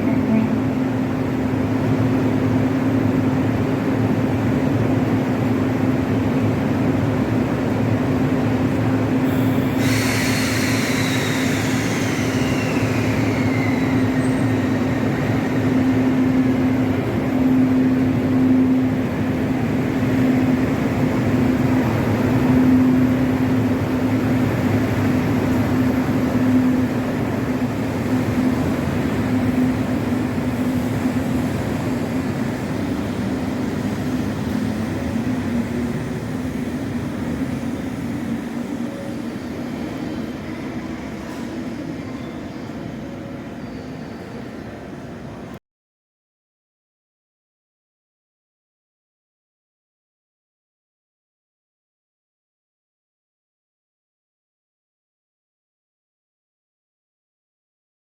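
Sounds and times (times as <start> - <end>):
train hum and rumble: 0.0 - 45.6.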